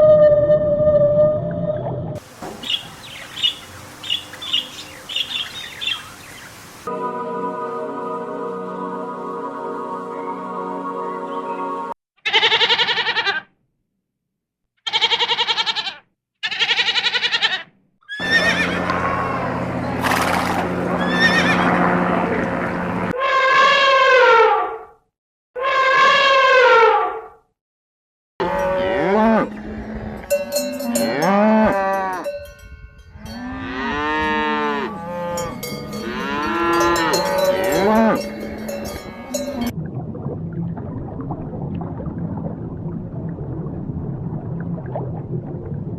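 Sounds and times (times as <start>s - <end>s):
livestock bleating: 12.2s - 13.5s, 14.8s - 19.4s
cows mooing: 18.2s - 19.7s, 20.9s - 21.8s, 28.4s - 32.3s, 33.2s - 39.7s
cowbells clinking: 30.2s - 33.7s, 35.3s - 39.7s.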